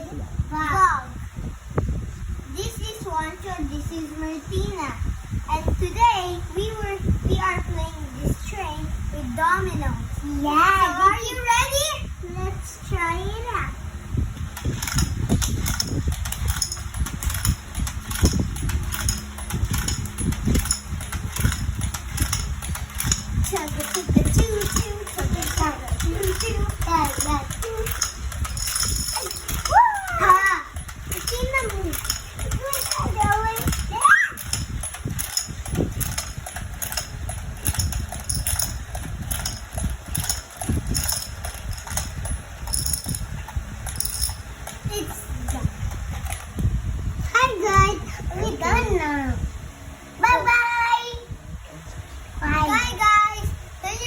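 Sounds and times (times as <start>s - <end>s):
small motor hum: 13.0s - 50.5s
toy train low rumble: 14.4s - 49.3s.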